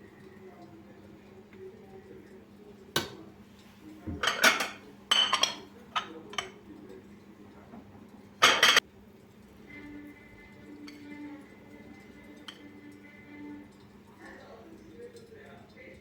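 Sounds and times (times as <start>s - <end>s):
dishes and cutlery clattering: 4.0s - 6.6s, 7.5s - 8.8s, 12.0s - 14.0s.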